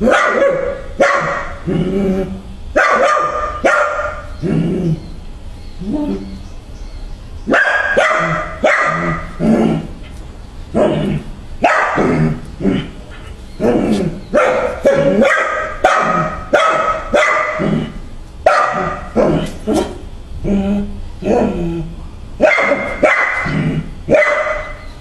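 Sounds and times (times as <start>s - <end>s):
dog barking: 0.0s - 1.6s, 2.8s - 4.3s, 7.5s - 9.3s, 11.6s - 12.2s, 14.3s - 17.6s, 18.4s - 19.8s, 22.4s - 24.9s.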